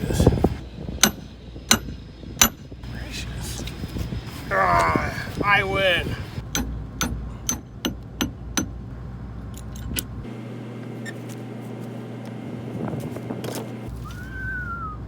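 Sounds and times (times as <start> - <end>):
engine running: 0.1 - 15.0
metallic tool clicks and clinks: 9.5 - 10.1.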